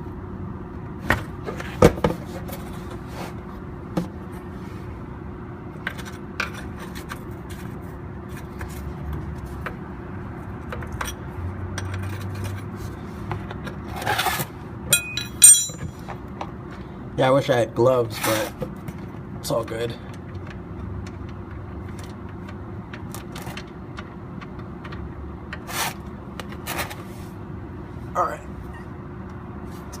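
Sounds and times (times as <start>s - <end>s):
steady low hum: 14.2s - 30.0s
hand tools clicking on metal: 14.9s - 15.9s
metallic clinks and ringing: 14.9s - 16.0s.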